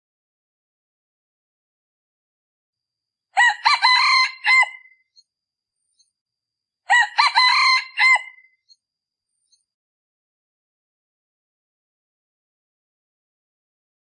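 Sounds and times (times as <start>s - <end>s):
rooster crowing: 3.4s - 5.0s, 6.9s - 8.5s.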